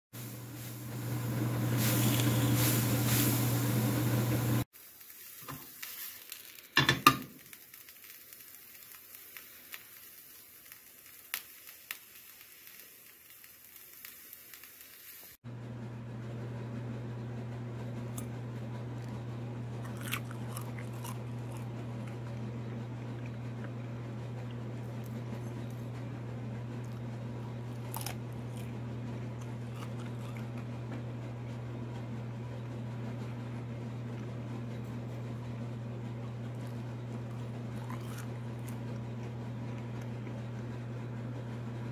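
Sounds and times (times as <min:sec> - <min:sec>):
crickets sizzling in frying pan: 0:00.2 - 0:15.4.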